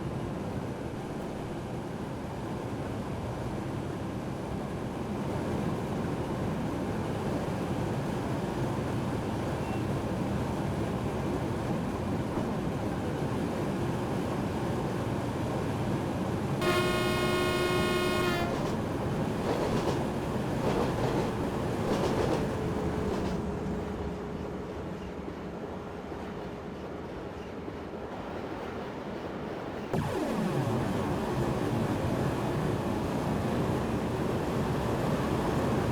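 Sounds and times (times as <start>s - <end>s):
train rumble: 0.0s - 35.9s
train horn: 16.6s - 18.9s
faint steady whine: 16.6s - 19.9s, 29.9s - 35.9s
rail clatter: 16.8s - 23.9s.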